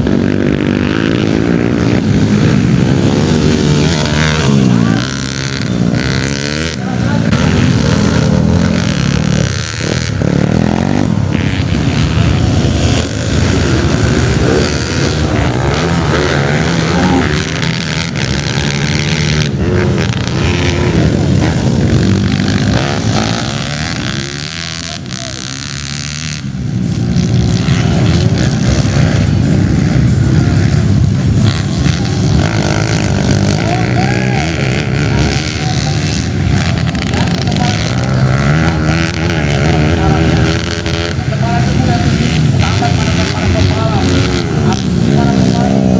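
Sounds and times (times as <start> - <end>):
motorbike engines revving: 0.0 - 45.9.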